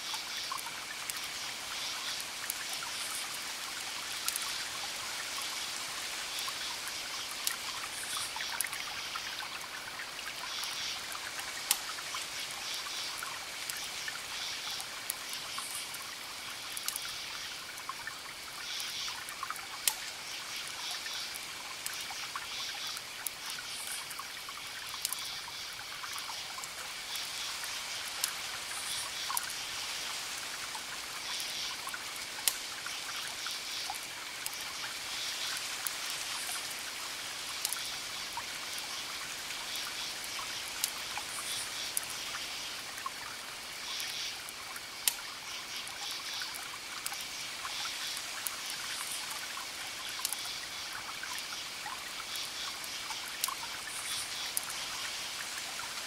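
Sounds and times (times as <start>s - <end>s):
wood fire crackling with pops: 4.2s - 4.5s, 11.6s - 11.9s, 16.7s - 17.1s, 19.8s - 20.1s, 31.9s - 33.3s, 37.6s - 37.9s, 40.8s - 41.0s, 44.6s - 45.3s, 50.2s - 50.5s, 53.4s - 54.8s.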